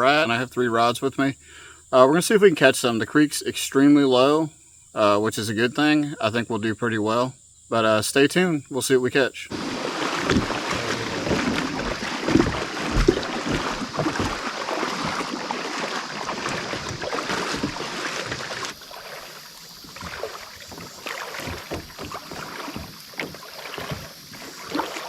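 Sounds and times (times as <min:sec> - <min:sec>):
wind buffeting microphone: 0:09.5 - 0:18.8
low thumps: 0:09.5 - 0:24.9
creek water splashing: 0:09.5 - 0:25.0.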